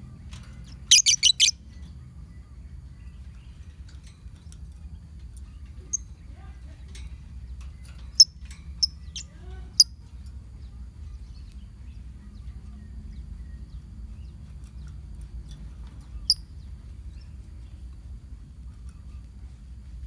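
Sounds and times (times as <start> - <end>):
low steady hum: 0.0 - 20.0
lovebirds chirping: 0.1 - 3.6, 4.9 - 9.9.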